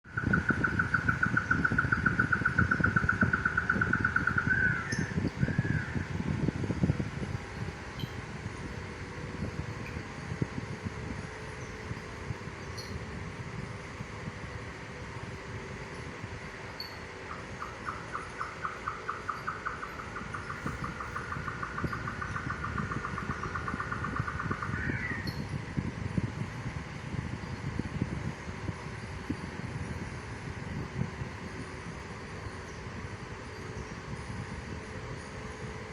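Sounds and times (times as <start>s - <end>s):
low rumbling noise: 0.0s - 35.9s
bird trilling: 0.1s - 6.1s, 16.8s - 25.5s.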